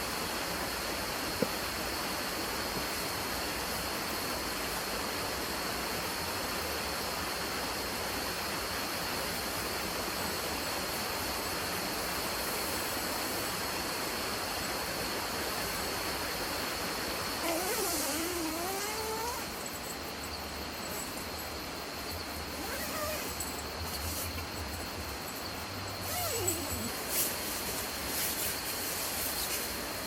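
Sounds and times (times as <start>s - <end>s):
thin high whine: 17.4s - 29.6s.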